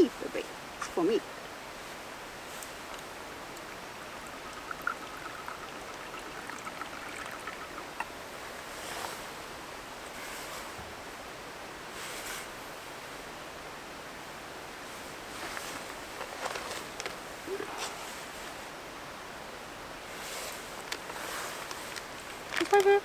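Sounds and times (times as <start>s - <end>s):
stream rushing: 0.0s - 22.6s
short rustles: 20.1s - 23.0s.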